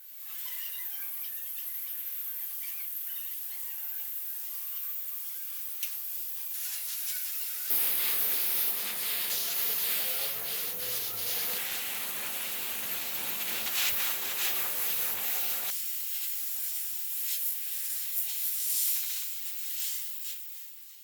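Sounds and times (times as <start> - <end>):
sandpaper rubbing: 7.7 - 15.7.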